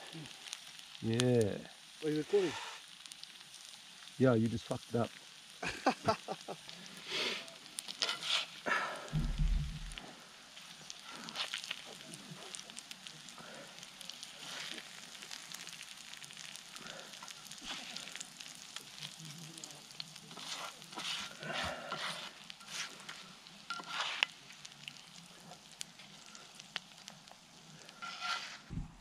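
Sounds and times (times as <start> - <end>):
food sizzling in a frying pan: 0.0 - 28.8
spatula scraping a pan: 7.2 - 8.6, 20.2 - 24.6, 27.9 - 28.7.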